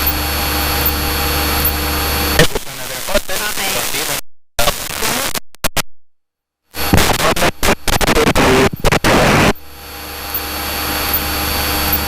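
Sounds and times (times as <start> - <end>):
plane engine droning: 0.0 - 2.4, 6.8 - 12.0.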